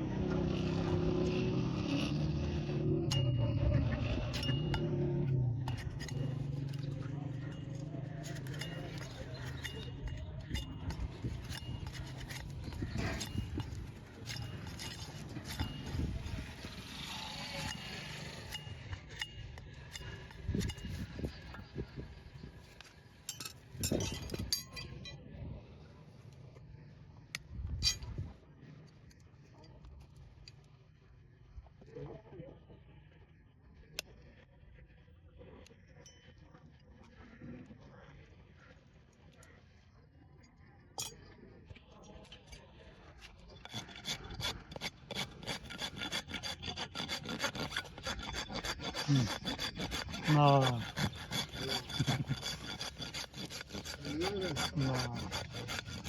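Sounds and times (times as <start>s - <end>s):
rasp filing a hoof: 0.2s - 25.0s, 43.2s - 56.0s.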